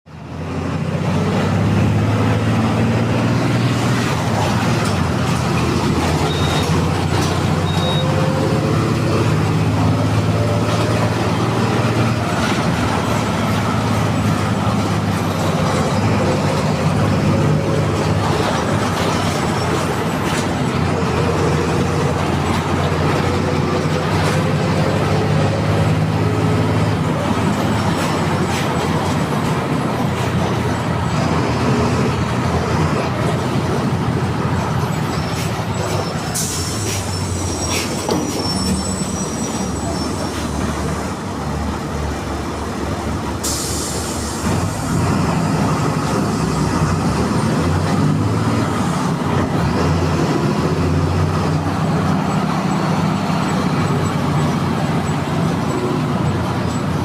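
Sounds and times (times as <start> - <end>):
diesel bus engine running: 0.1 - 57.0.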